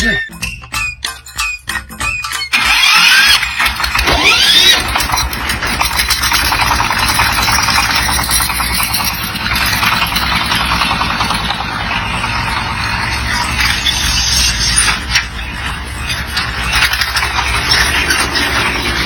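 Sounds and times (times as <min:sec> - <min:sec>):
truck engine clattering: 0:00.0 - 0:19.0.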